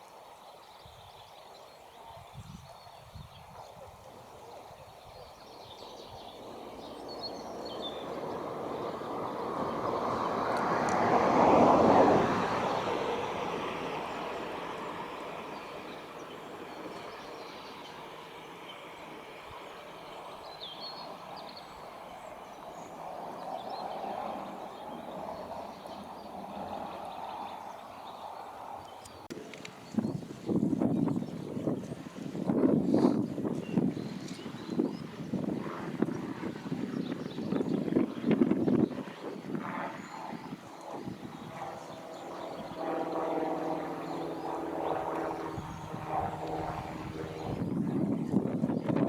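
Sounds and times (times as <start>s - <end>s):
vehicle passing by: 7.0s - 16.2s.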